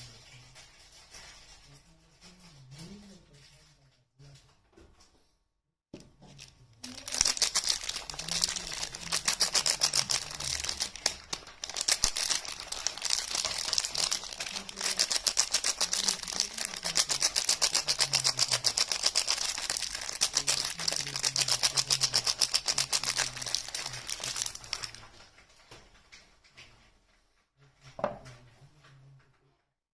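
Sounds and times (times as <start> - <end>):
packaging crinkling: 6.2 - 25.6.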